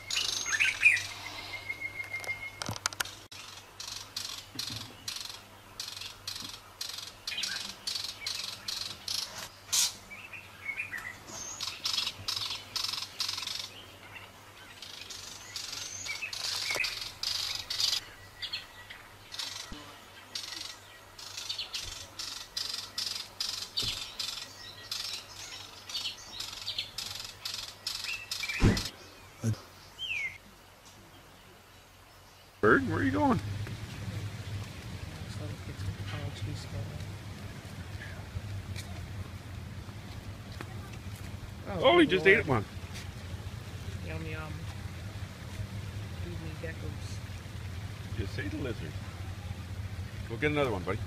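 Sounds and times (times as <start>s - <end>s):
small bird chirping rapidly: 10.8s - 13.8s, 14.8s - 18.7s, 19.3s - 28.9s.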